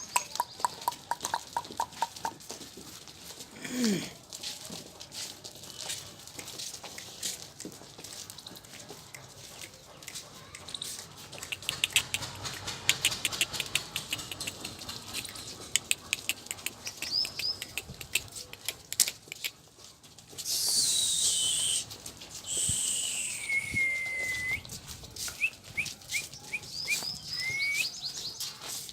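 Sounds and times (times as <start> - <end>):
irregular tapping and clicking: 9.1 - 19.6.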